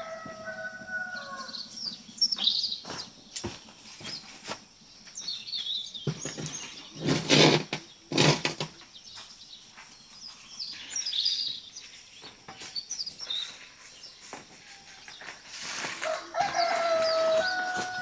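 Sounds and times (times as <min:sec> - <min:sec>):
rooster crowing: 0:00.0 - 0:01.7, 0:15.8 - 0:18.0
small birds chirping: 0:00.0 - 0:18.0.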